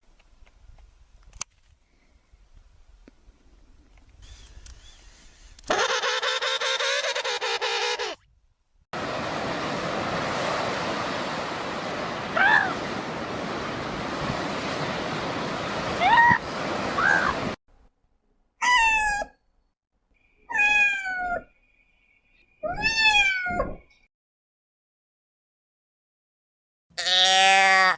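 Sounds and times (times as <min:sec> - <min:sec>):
steady rushing noise: 0:09.0 - 0:17.6
cat meowing: 0:20.5 - 0:21.4, 0:22.6 - 0:23.7.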